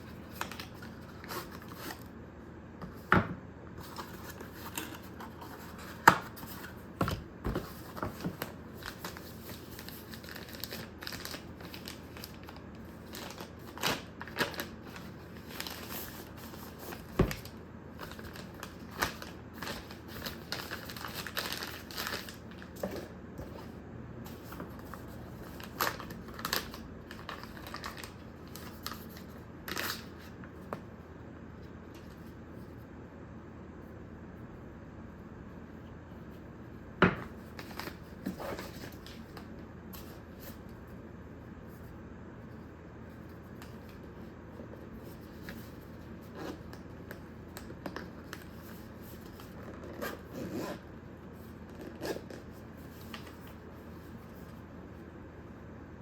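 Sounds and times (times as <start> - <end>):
packaging crinkling and rustling: 0.0 - 2.1, 3.8 - 23.1, 24.3 - 30.4, 37.4 - 40.6.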